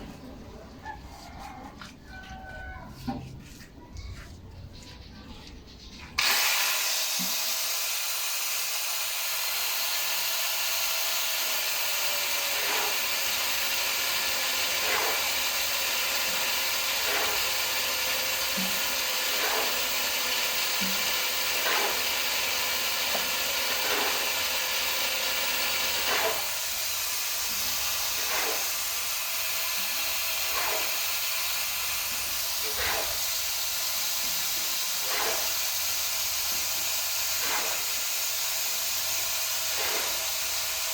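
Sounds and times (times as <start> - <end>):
arc welding hiss: 18.6 - 19.7, 26.0 - 26.6.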